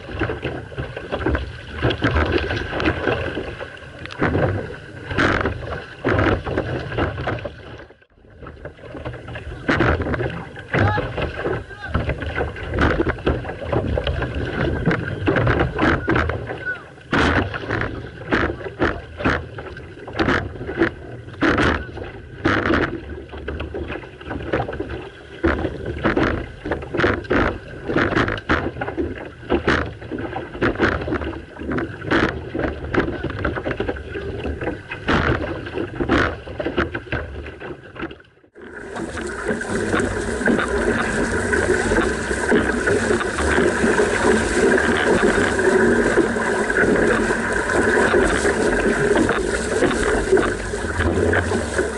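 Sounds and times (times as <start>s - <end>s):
paddles splashing in water: 0.0s - 51.9s
rushing water: 0.0s - 51.9s
wind on microphone: 38.6s - 51.9s.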